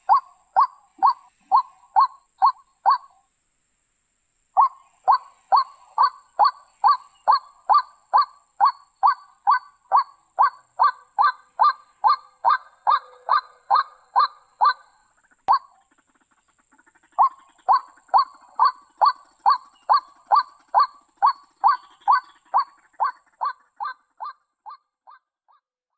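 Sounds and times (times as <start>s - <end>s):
waterhen calling short notes: 0.0s - 3.2s.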